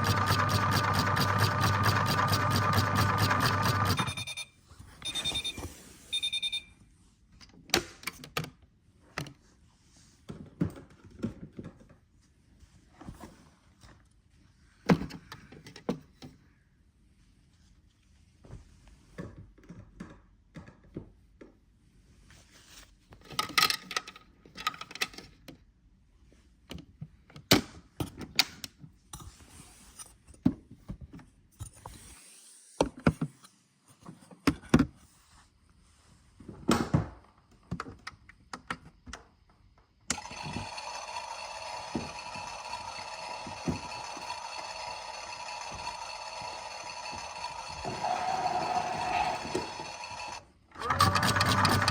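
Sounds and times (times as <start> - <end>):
washing machine humming: 0.0 - 4.3, 40.1 - 51.9.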